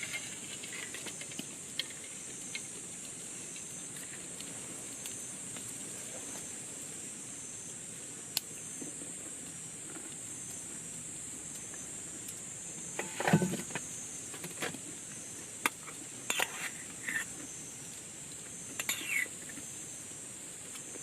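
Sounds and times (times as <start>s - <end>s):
camp gear clicking and clattering: 13.0s - 14.8s.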